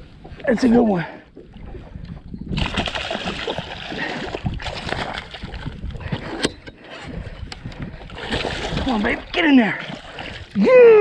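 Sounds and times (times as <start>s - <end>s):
fish splashing in water: 2.6s - 5.7s.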